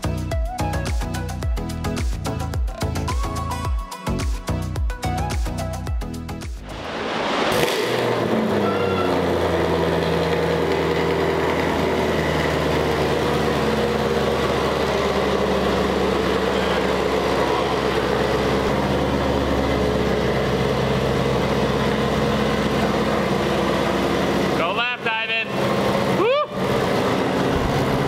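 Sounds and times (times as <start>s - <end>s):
car engine idling: 6.6s - 28.0s.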